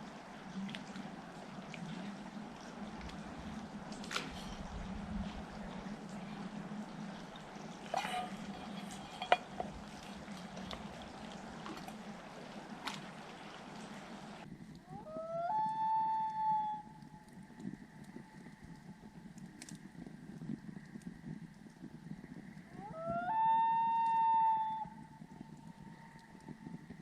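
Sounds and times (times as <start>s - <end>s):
campfire crackling and popping: 0.0s - 15.0s, 17.0s - 22.8s.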